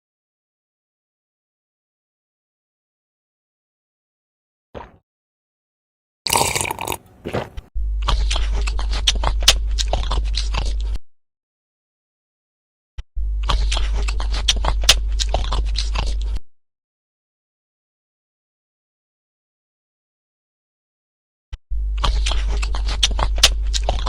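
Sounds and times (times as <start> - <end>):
crunchy chewing and biting: 6.3 - 11.0, 13.4 - 16.4, 21.9 - 24.0
low hum: 7.8 - 11.0.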